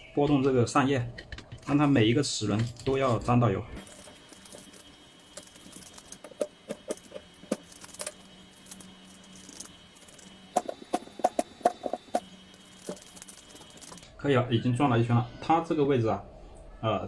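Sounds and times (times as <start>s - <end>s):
faint steady hum: 0.0s - 17.0s
metal gear parts clicking: 2.4s - 14.1s.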